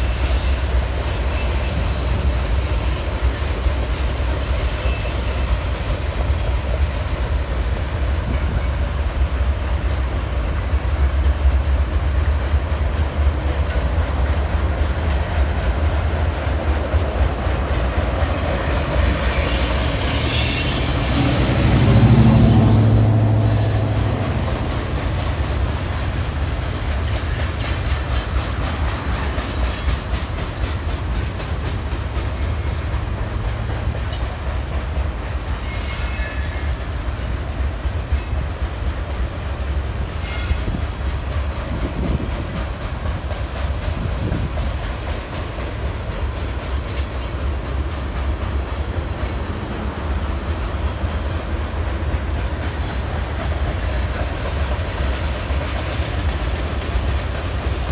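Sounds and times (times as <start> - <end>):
train rumbling past: 0.0 - 57.9
high wheel squeal: 18.6 - 25.0, 35.6 - 36.8, 40.2 - 40.8.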